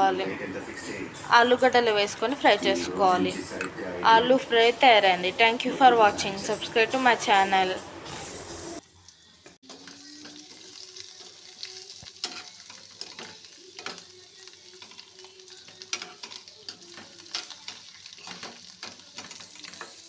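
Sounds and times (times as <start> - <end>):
potatoes sizzling in oil: 4.1 - 20.0
spatula scraping a pan: 12.0 - 20.0.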